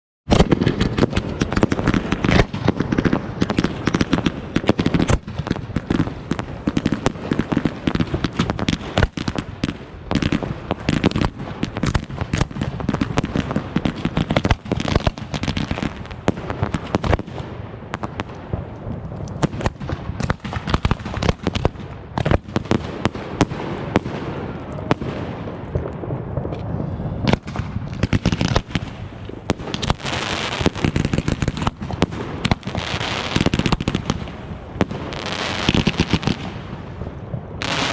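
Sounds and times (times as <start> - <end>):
fireworks bangs and crackles: 0.3 - 37.9.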